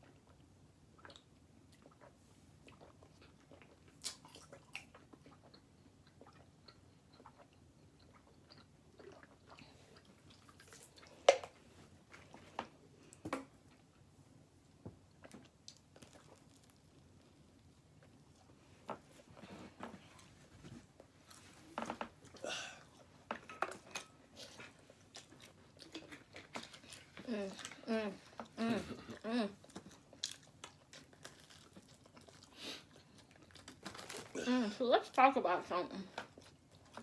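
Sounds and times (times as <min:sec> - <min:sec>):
person chewing: 0:01.0 - 0:11.4, 0:15.1 - 0:18.6, 0:23.8 - 0:34.5.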